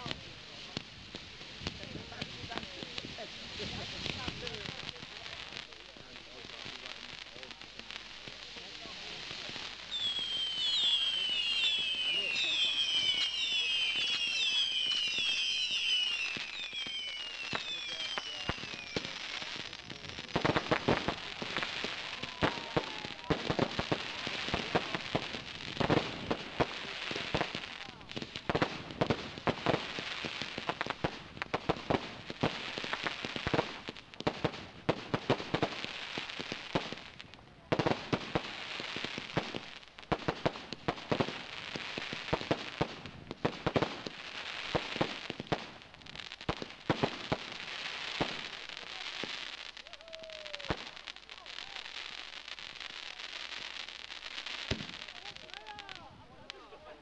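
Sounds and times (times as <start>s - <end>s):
firework bangs and crackling: 0.0s - 57.0s
firework whistles: 8.6s - 37.2s, 46.4s - 56.0s.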